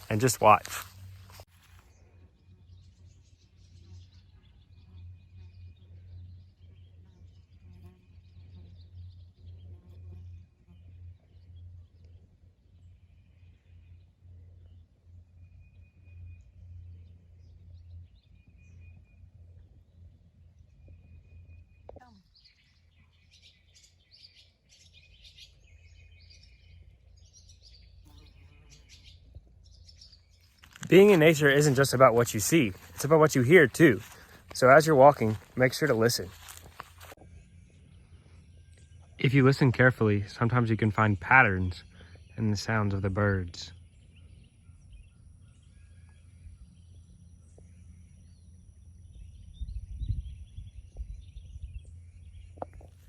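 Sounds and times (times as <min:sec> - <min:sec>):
songbirds chirping and singing: 0:00.0 - 0:53.0
low rumble on microphone: 0:44.2 - 0:53.0.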